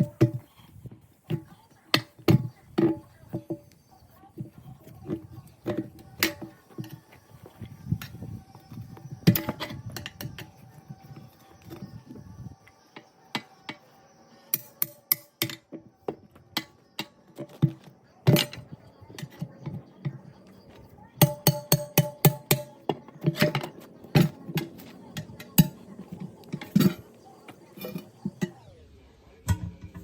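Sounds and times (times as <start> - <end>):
tire bars knocking on steel wheel: 0.0 - 0.6, 1.3 - 3.8, 4.4 - 10.6, 14.6 - 20.3, 21.2 - 28.6.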